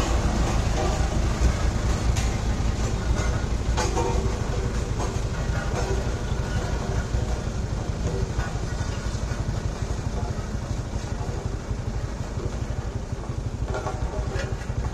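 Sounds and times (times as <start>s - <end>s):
road roller engine running: 0.0s - 14.9s.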